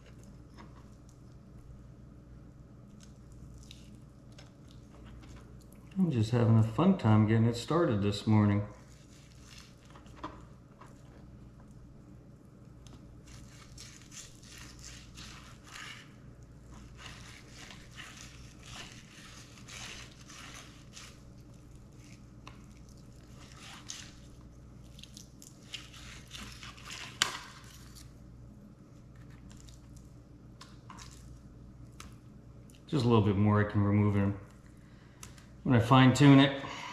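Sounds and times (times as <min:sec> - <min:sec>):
steady low hum: 0:00.0 - 0:36.9
knife cutting and scraping fish: 0:08.8 - 0:11.1, 0:13.2 - 0:28.1.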